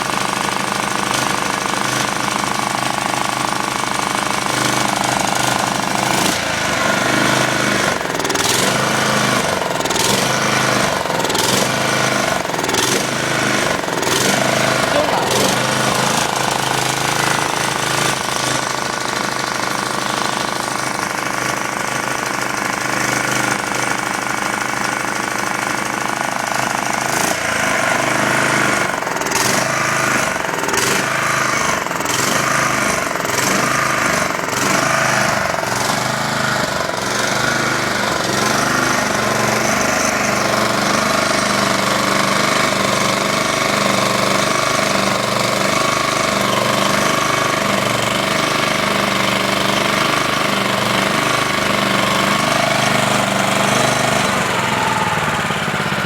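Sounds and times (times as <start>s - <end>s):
lawn mower engine running: 0.0s - 56.0s.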